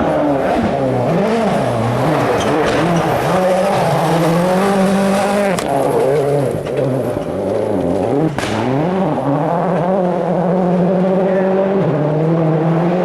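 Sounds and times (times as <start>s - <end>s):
rally car engine revving: 0.0s - 13.0s
sharp crack: 7.8s - 9.0s.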